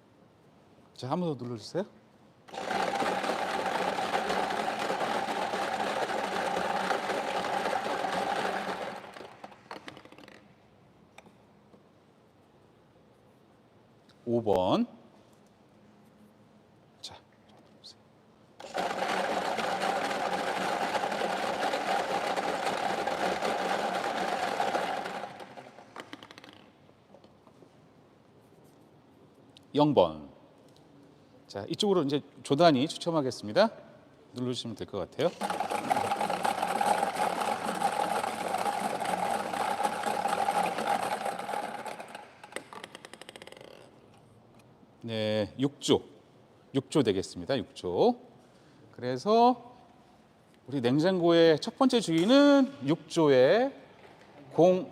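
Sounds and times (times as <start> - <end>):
spinning number picker ticking: 2.5 - 9.5, 18.6 - 25.8, 35.4 - 42.6
draw machine whirring and clicking: 2.5 - 9.8, 18.6 - 26.2, 35.3 - 42.9.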